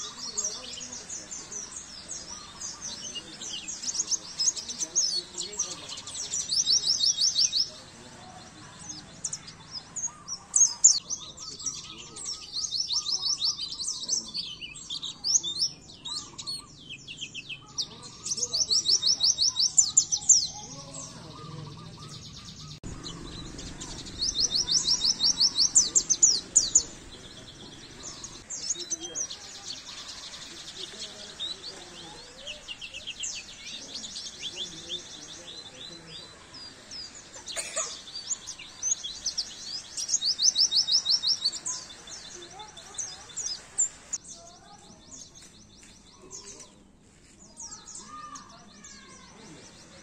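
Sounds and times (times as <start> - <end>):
bird twittering and trilling: 0.0 - 50.0.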